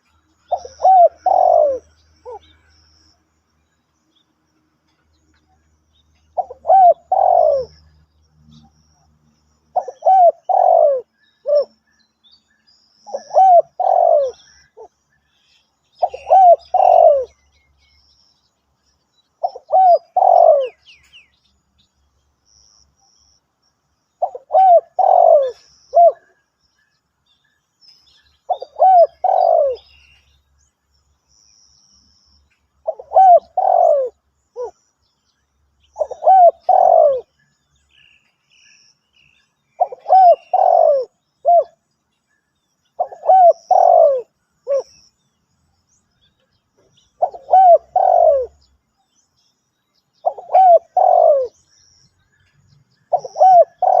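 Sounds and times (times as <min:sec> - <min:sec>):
small birds chirping: 0:00.0 - 0:54.0
dove cooing: 0:00.5 - 0:02.5, 0:06.4 - 0:07.9, 0:09.7 - 0:11.7, 0:13.1 - 0:15.0, 0:16.0 - 0:17.4, 0:19.4 - 0:20.9, 0:24.2 - 0:26.4, 0:28.5 - 0:29.9, 0:32.8 - 0:34.8, 0:36.0 - 0:37.3, 0:39.8 - 0:41.8, 0:43.0 - 0:44.9, 0:47.2 - 0:48.7, 0:50.2 - 0:51.6, 0:53.1 - 0:54.0.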